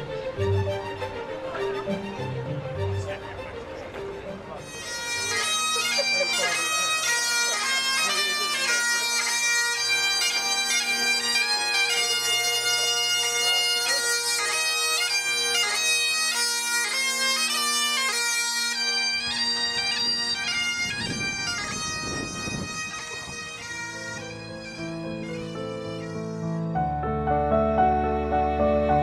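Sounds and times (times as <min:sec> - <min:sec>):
bagpipe drone: 0:00.0 - 0:29.0
bagpipe chanter melody: 0:04.6 - 0:27.0.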